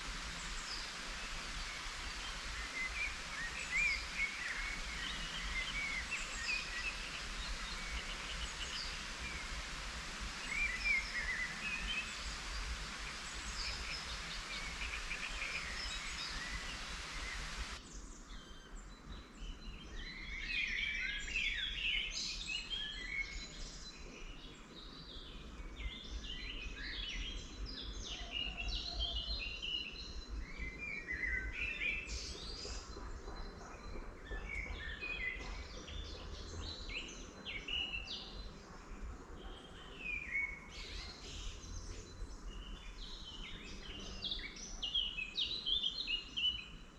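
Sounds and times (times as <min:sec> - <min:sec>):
light rain hissing: 0:00.0 - 0:17.9, 0:37.2 - 0:46.9
birds calling: 0:00.0 - 0:19.9
songbirds chirping and singing: 0:00.0 - 0:46.9.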